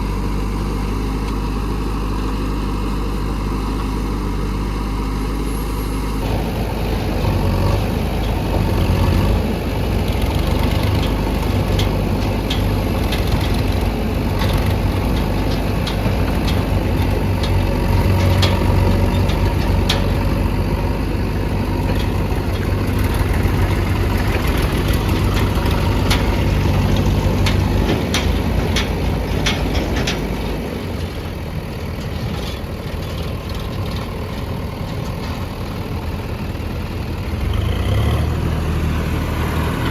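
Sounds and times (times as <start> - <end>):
diesel engine running: 0.0 - 39.9
sharp clicks and knocks: 8.2 - 20.8, 21.5 - 31.2.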